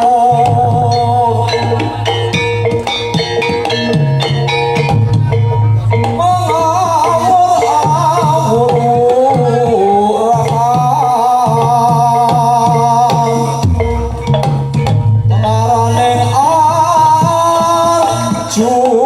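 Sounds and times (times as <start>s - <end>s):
wavering melody line: 0.0s - 18.6s
gamelan drum pattern: 0.0s - 19.0s
chime-like tones: 0.3s - 9.6s, 12.7s - 16.4s.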